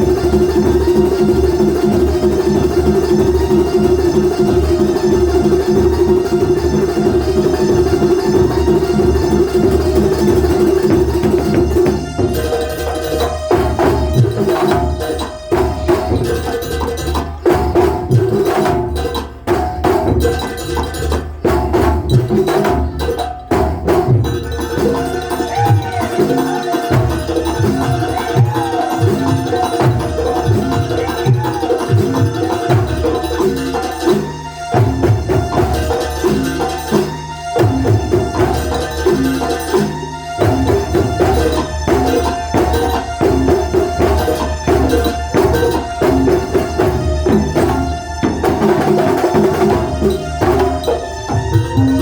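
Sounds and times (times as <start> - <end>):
drums beating a driving rhythm: 0.0 - 52.0
traditional ensemble music: 0.0 - 52.0.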